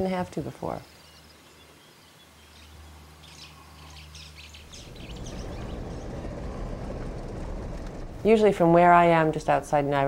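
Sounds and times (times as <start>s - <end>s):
birds chirping: 0.7s - 8.3s
low rumble: 4.6s - 10.0s
low steady hum: 4.7s - 10.0s.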